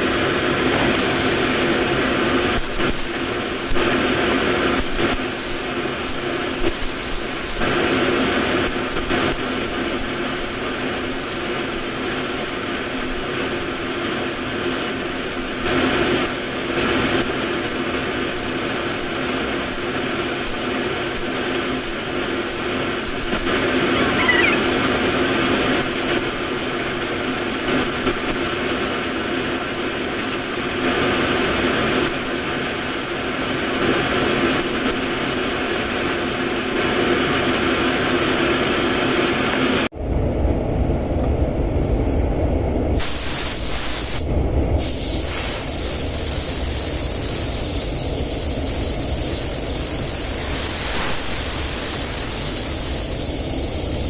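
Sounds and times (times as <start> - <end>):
spray gun air hiss: 2.5 - 24.6, 25.8 - 31.2, 43.0 - 54.0.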